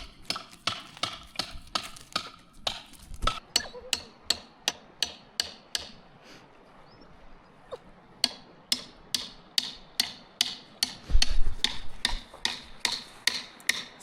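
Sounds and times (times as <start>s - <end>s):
hammer striking: 8.2s - 14.0s.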